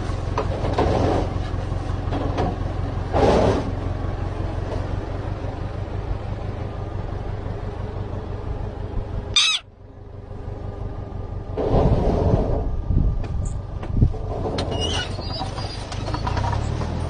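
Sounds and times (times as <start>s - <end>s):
low rumble: 0.0s - 14.8s
sharp bird call: 9.3s - 9.7s.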